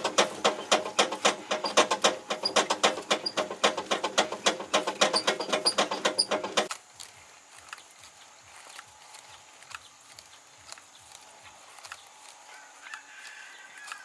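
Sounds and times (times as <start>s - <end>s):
fast sharp knocks: 0.0s - 6.7s.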